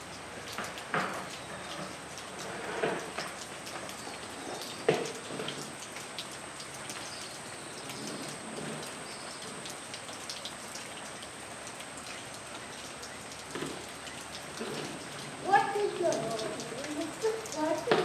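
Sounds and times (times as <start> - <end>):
rain falling: 0.0 - 18.0
raindrops tapping on surfaces: 0.0 - 18.0.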